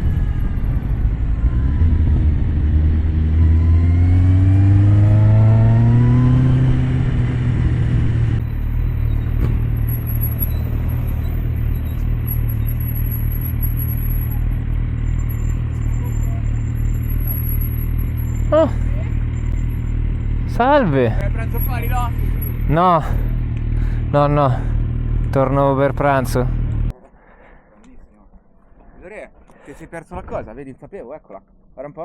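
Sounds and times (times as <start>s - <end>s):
motorcycle engine revving: 0.0s - 26.9s.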